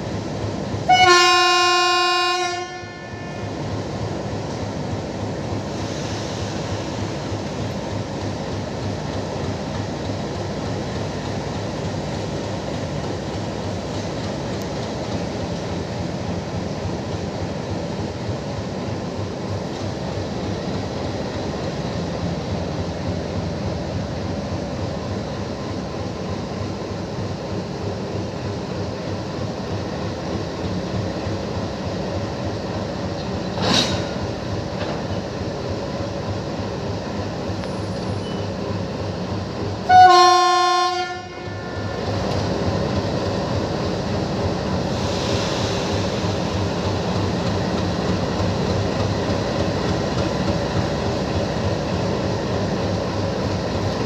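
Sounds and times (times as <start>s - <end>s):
diesel locomotive engine running: 0.0s - 54.0s
train horn blast: 0.9s - 3.5s, 39.9s - 42.0s.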